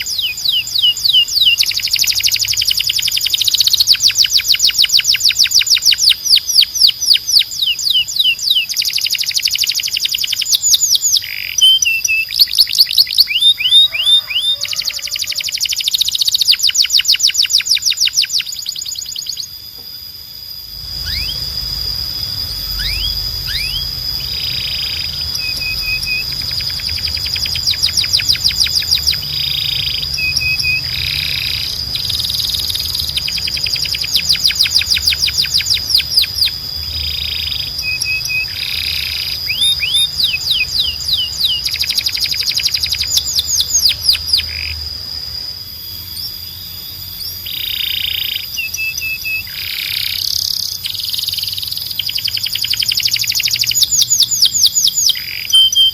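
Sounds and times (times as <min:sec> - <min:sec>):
canary singing trills: 0:00.0 - 0:55.9
steady high whistle-like tone: 0:00.0 - 0:55.9.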